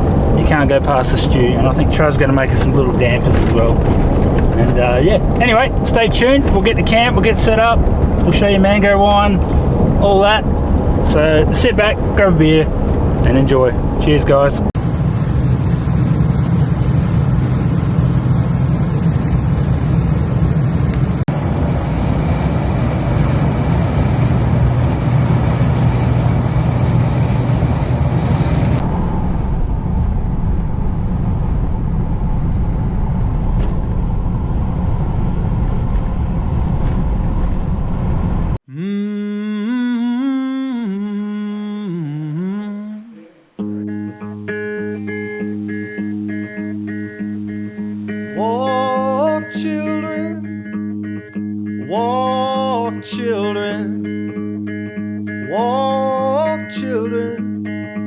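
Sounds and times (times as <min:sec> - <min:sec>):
guitar song: 0:00.0 - 0:14.7, 0:38.1 - 0:58.0
vehicle engine and road noise: 0:00.0 - 0:38.6, 0:42.2 - 0:55.6
person humming a melody: 0:38.7 - 0:43.3.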